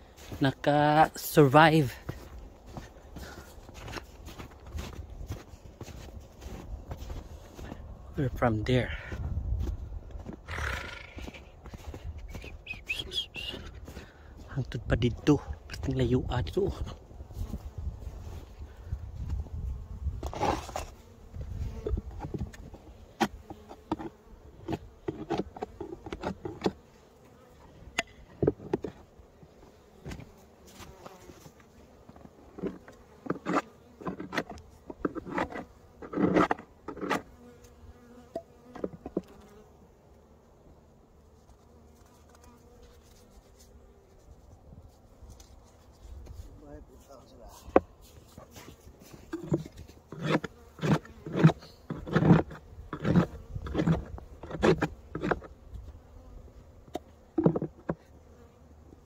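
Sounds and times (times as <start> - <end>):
honeybees buzzing: 0.0 - 14.5, 15.1 - 59.0
knocks and clicks from hive handling: 21.7 - 26.8, 27.9 - 29.1, 30.0 - 39.6, 47.6 - 55.9, 56.8 - 58.5.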